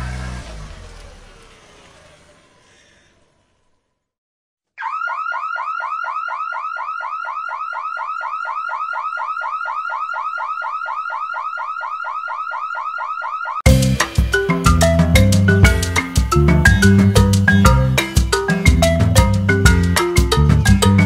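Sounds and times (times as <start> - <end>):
electronic whooping alarm chirp: 4.8 - 13.7.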